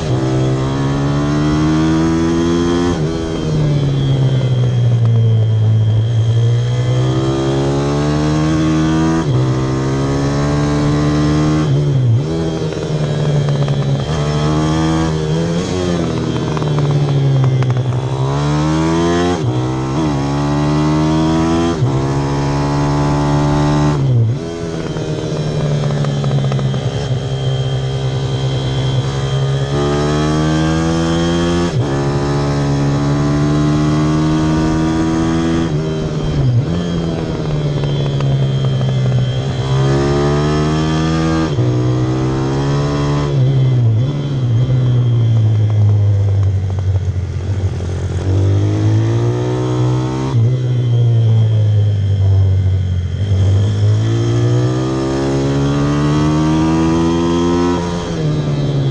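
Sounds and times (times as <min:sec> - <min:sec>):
motorbike engine revving: 0:00.0 - 0:58.9.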